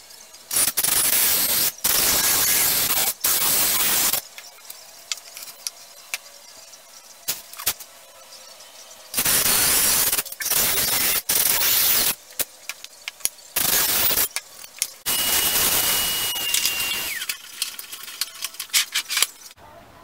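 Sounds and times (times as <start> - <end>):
power tool whining on wood: 15.1 - 17.4.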